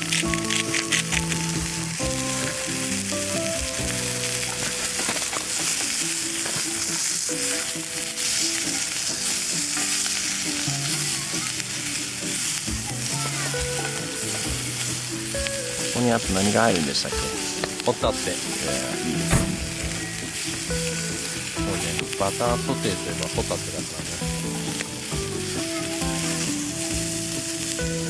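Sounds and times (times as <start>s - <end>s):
background music: 0.0s - 28.0s
vegetables sizzling in a frying pan: 0.0s - 28.0s
stirring in a frying pan: 0.5s - 18.6s.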